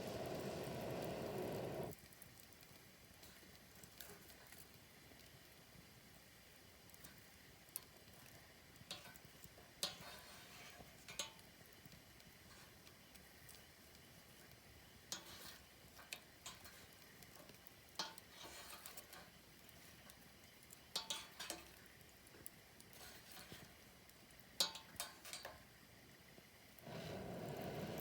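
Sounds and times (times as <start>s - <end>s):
low rushing noise: 0.0s - 1.9s
campfire crackling and popping: 0.0s - 28.0s.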